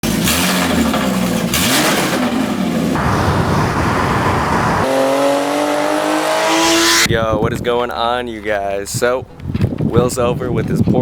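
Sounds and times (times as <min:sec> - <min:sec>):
car engine revving and accelerating: 0:00.1 - 0:07.1.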